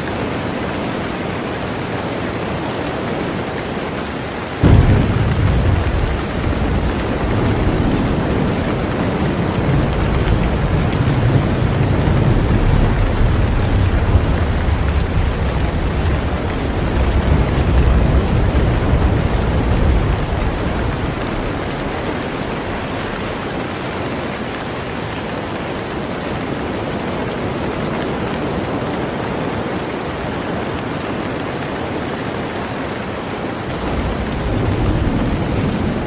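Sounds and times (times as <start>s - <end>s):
heavy rain on a boat: 0.0s - 36.0s
deep low rumble: 4.6s - 23.4s.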